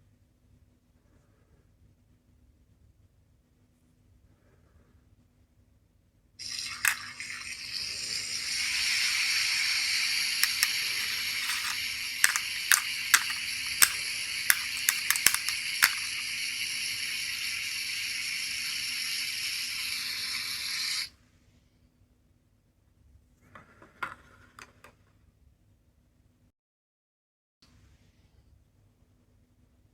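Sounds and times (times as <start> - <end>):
toy speaker hissing like water: 6.4 - 21.1
sharp clicks: 10.4 - 16.2.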